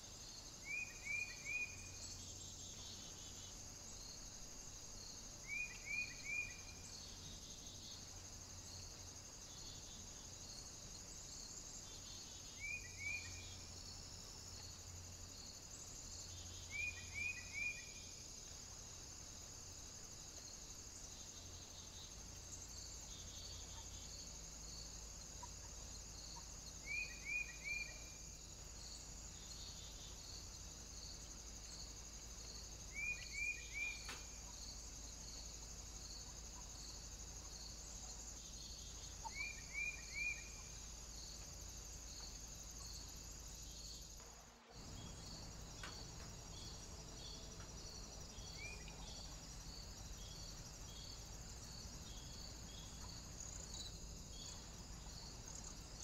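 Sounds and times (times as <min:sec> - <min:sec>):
small bird chirping: 0:32.9 - 0:34.7, 0:38.6 - 0:41.4.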